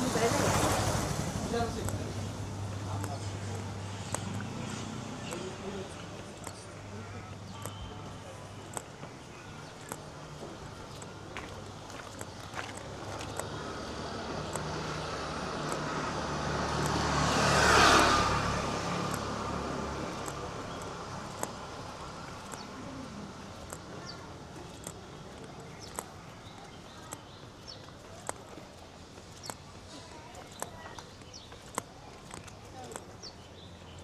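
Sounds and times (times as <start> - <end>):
vehicle passing by: 0.0 - 7.4, 12.8 - 23.8
footsteps walking: 1.7 - 16.0.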